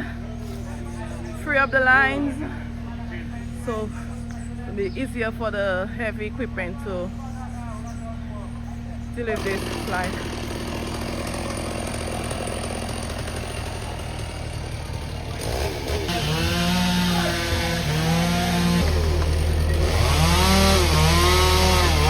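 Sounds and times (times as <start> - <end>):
chainsaw cutting: 8.5 - 22.0.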